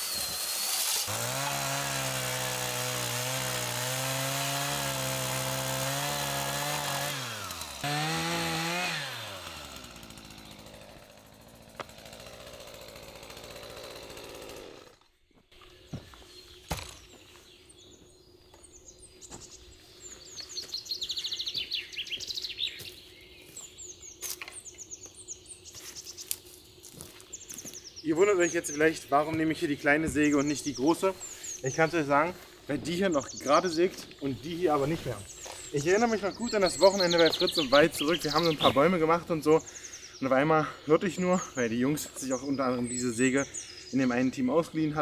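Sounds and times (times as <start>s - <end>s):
power tool motor running: 0.0s - 15.1s
birds chirping: 1.3s - 45.0s.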